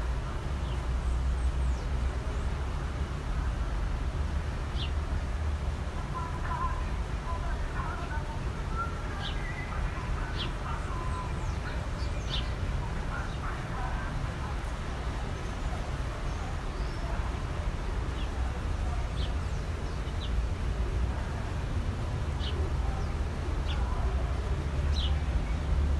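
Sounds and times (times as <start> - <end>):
birds chirping: 4.7 - 5.0, 6.1 - 20.8, 22.3 - 24.2, 24.8 - 25.8.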